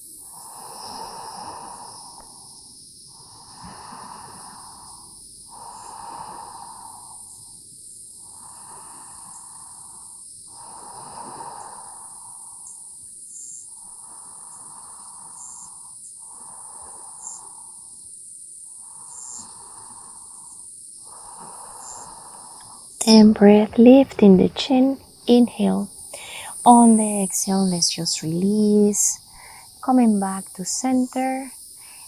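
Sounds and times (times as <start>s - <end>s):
insects chorus: 0.0s - 23.7s, 25.0s - 32.0s
person breathing slowly: 0.2s - 2.4s, 3.2s - 7.4s, 8.3s - 12.5s, 21.0s - 22.9s, 26.1s - 26.6s, 29.2s - 29.8s, 31.6s - 32.0s.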